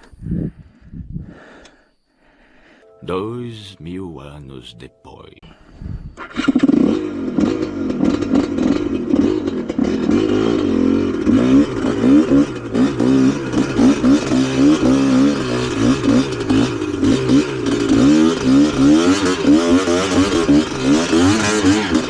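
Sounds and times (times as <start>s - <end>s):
motorcycle engine revving: 6.5s - 22.0s.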